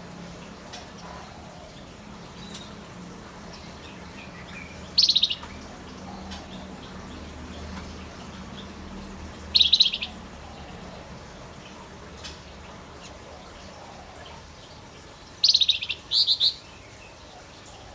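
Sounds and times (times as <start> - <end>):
bird singing high trills: 5.0 - 5.4, 9.5 - 10.2.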